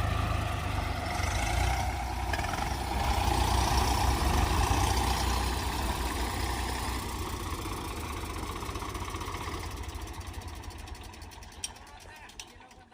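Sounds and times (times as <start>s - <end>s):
tractor diesel engine running: 0.0s - 12.9s.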